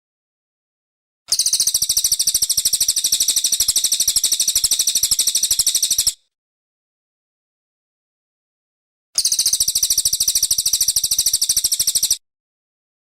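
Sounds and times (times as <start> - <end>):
songbird singing a fast trill: 1.3 - 6.2, 9.2 - 12.2.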